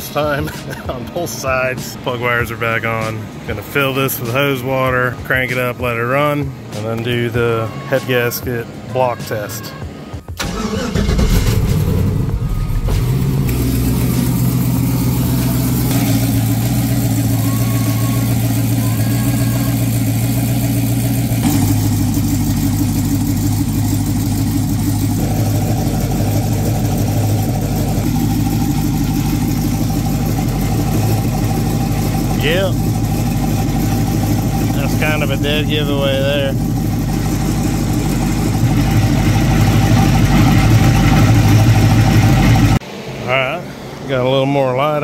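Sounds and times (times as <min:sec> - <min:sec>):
drag car engine starting and idling: 0:10.3 - 0:45.0.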